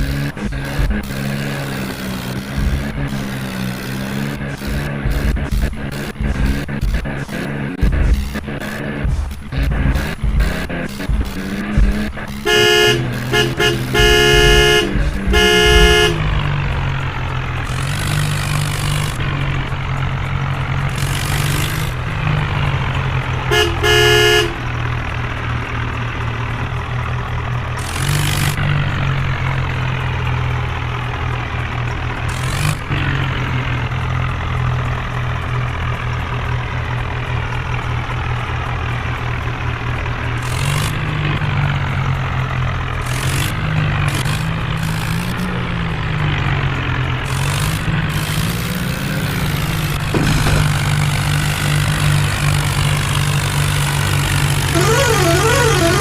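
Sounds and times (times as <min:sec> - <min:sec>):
horn toots: 0:00.0 - 0:20.0, 0:20.6 - 0:41.5, 0:49.2 - 0:56.0
tractor diesel engine running: 0:00.0 - 0:56.0.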